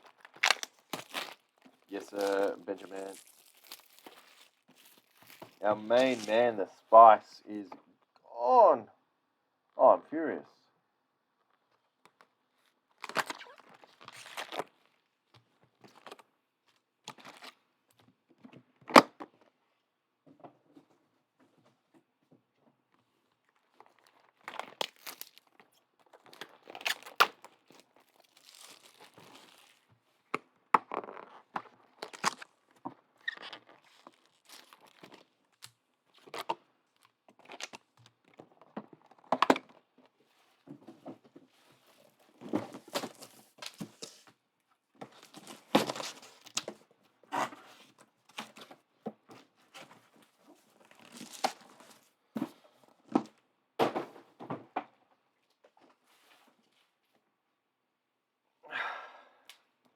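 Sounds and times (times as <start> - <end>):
wrappers torn and crinkled: 0.0 - 6.4, 13.0 - 14.8, 23.8 - 29.9, 31.1 - 32.6, 33.2 - 37.9, 50.9 - 52.0.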